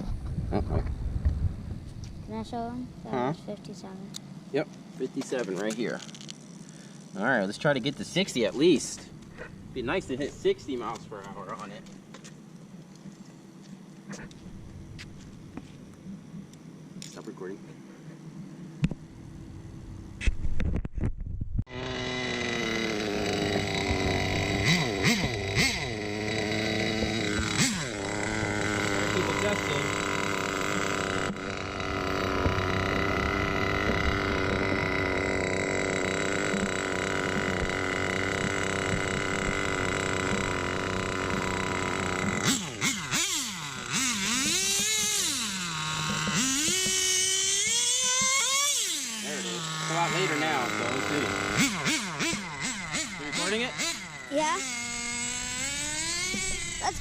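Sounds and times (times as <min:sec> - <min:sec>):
small nitro engine idling: 0:02.2 - 0:17.2, 0:21.7 - 0:57.0
engine throttle blips: 0:21.6 - 0:57.0.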